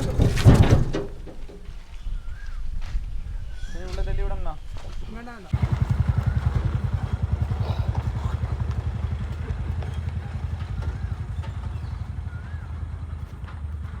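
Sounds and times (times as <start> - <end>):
engine idling: 5.5 - 14.0.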